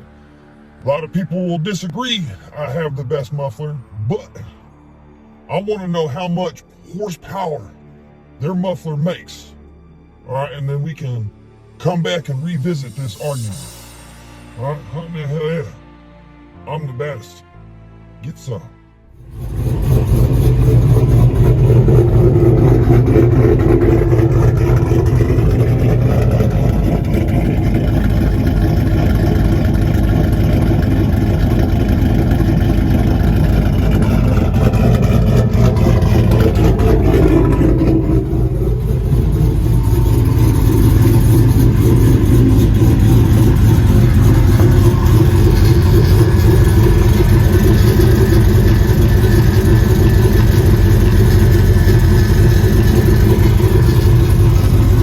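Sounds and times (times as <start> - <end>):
deep exhaust drone: 19.1 - 55.0.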